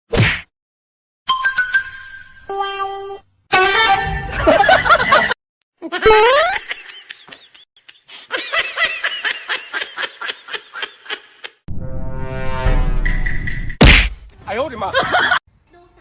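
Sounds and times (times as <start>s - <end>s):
high-pitched laughter: 3.6s - 11.6s.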